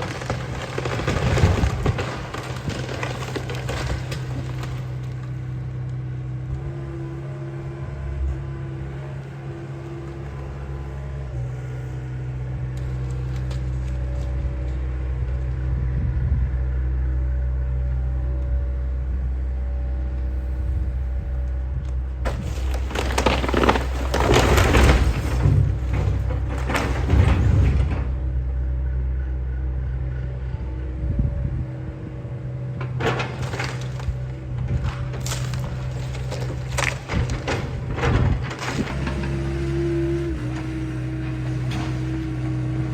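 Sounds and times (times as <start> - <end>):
wood crunching and cracking: 0.0 - 6.2, 12.7 - 14.8, 22.2 - 28.3, 32.8 - 42.9
excavator diesel engine running: 0.0 - 42.9.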